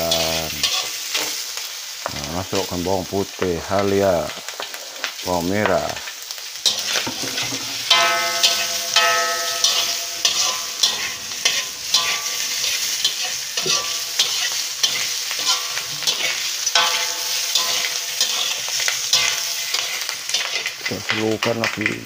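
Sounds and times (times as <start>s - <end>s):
wok ringing: 0.0s - 1.4s, 6.6s - 21.5s
metal utensil scraping a wok: 0.0s - 1.7s, 6.0s - 21.2s
pork sizzling in a wok: 0.0s - 22.0s.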